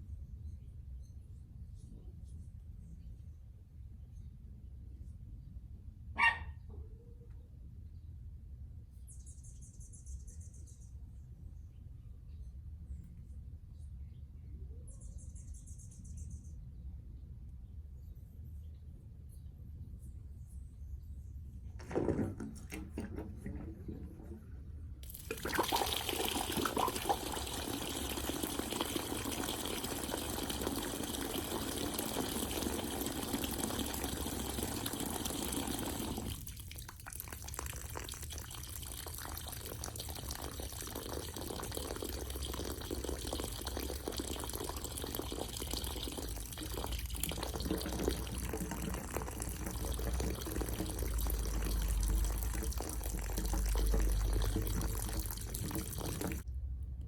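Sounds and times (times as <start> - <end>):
water rushing from drain line: 21.8 - 56.4.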